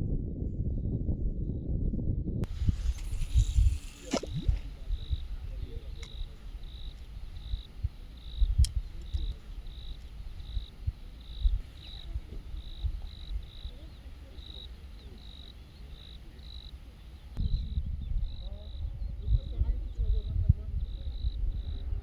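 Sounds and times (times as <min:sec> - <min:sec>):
low rumble: 0:00.0 - 0:22.0
sharp crack: 0:02.4 - 0:07.5
cricket chirping: 0:02.4 - 0:22.0.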